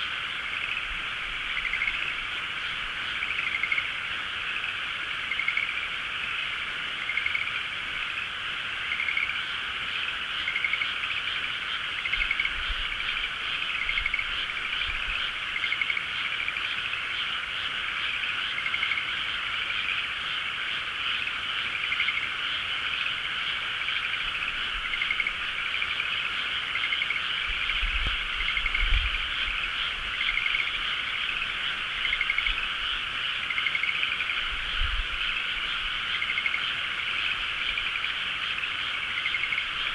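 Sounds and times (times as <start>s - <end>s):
frogs croaking: 0.0s - 39.9s.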